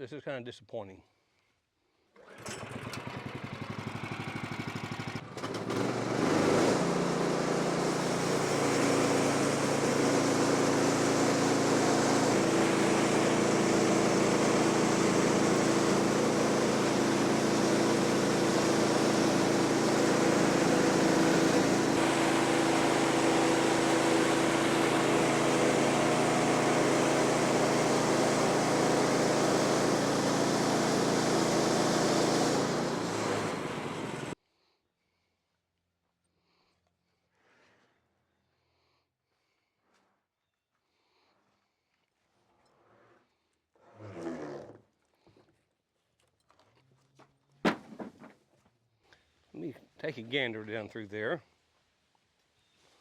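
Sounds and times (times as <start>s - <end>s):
small gasoline engine running: 2.2s - 34.4s.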